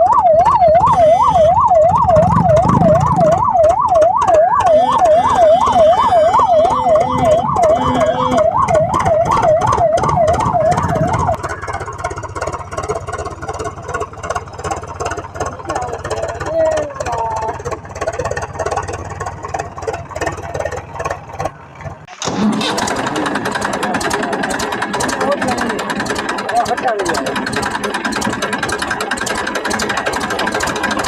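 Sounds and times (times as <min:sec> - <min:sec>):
electronic siren yelping: 0:00.0 - 0:12.1
mechanical running noise: 0:00.2 - 0:31.0.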